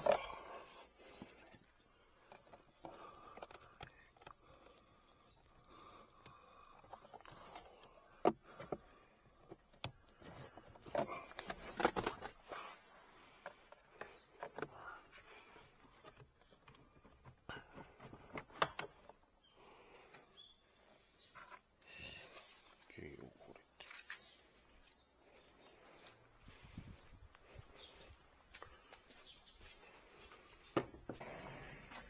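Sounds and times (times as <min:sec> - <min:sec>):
hands handling plastic parts: 0:00.0 - 0:04.8, 0:06.2 - 0:12.7.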